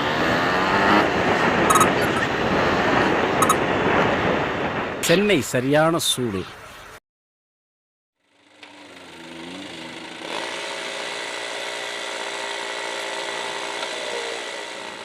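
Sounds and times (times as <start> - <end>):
motorcycle engine running: 1.4 - 2.5, 8.2 - 15.0.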